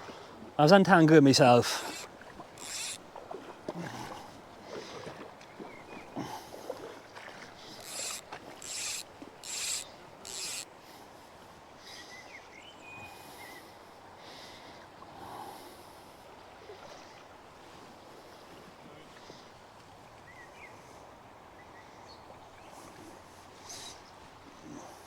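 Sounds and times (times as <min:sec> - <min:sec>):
rustling against microphone: 0:01.4 - 0:03.0, 0:07.6 - 0:10.6.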